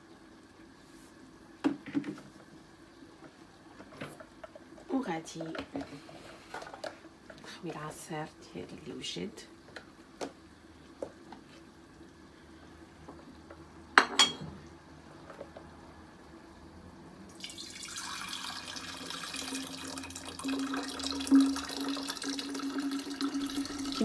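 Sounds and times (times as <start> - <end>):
juice pouring into a container: 17.3 - 24.0.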